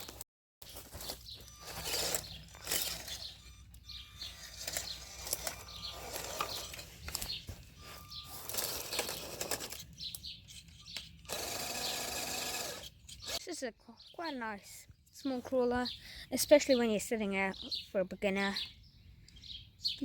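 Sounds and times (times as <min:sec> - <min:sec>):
rc car crunching over rough ground: 0:00.0 - 0:13.4.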